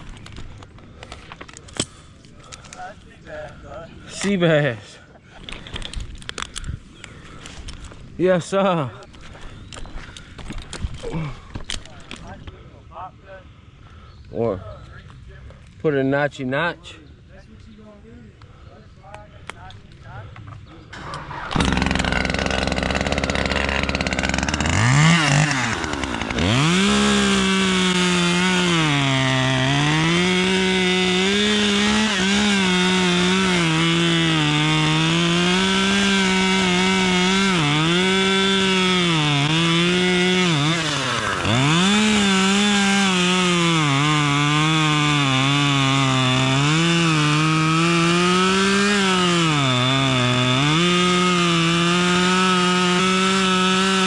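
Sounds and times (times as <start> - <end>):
chainsaw cutting wood: 21.0 - 54.0.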